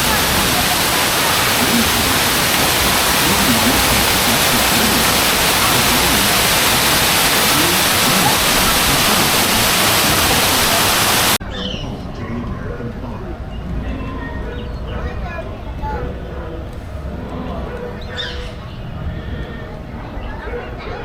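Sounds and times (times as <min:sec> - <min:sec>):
heavy rain pouring: 0:00.0 - 0:11.4.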